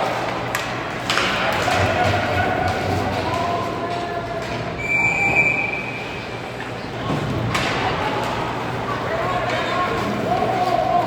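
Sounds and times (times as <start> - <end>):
crowd chatter: 0.0 - 11.0
referee whistle blast: 4.8 - 6.0.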